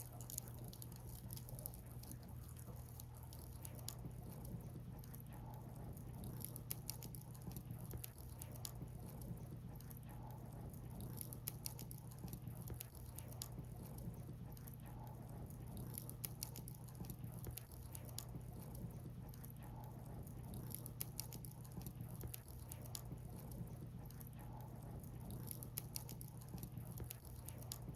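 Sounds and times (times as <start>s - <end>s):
firewood crackling and popping: 0.0s - 5.3s, 15.4s - 27.9s
low background hum: 0.0s - 27.9s.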